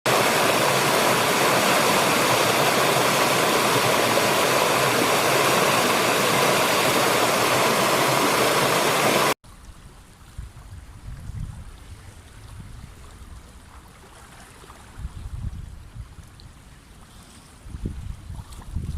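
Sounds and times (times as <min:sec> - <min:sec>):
fast-flowing river water rushing: 0:00.1 - 0:09.4.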